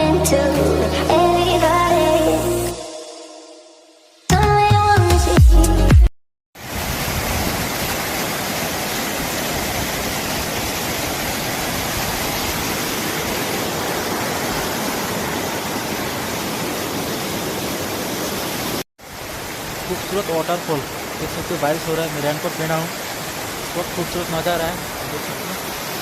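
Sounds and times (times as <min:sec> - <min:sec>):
waterfall roaring: 0:06.6 - 0:26.0.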